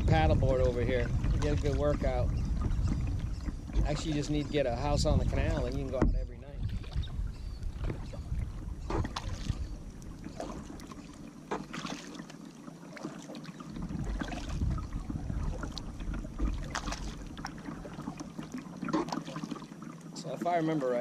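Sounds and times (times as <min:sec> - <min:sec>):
wind rumble on microphone: 0:00.0 - 0:11.0, 0:13.7 - 0:18.2
kayak paddle splashing: 0:00.0 - 0:21.0.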